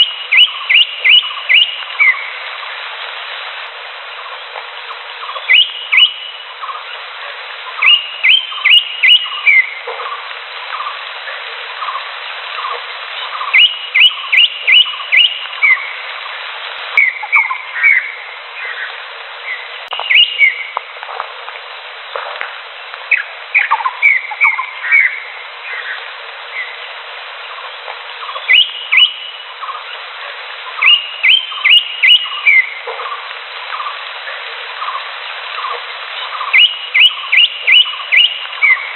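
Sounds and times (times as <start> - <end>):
bird whistling calls: 0.0 - 2.3, 5.2 - 6.8, 7.7 - 9.8, 12.6 - 16.0, 17.0 - 20.8, 23.1 - 26.8, 28.2 - 29.8, 30.8 - 32.8, 35.6 - 38.9
constant hiss: 0.0 - 38.9.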